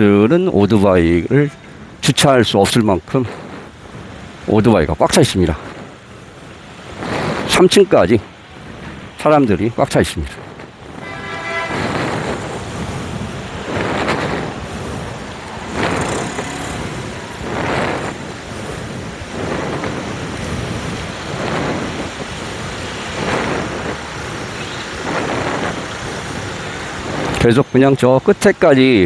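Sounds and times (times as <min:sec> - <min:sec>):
road traffic passing: 0:00.0 - 0:29.0
car horn beep: 0:11.0 - 0:12.4.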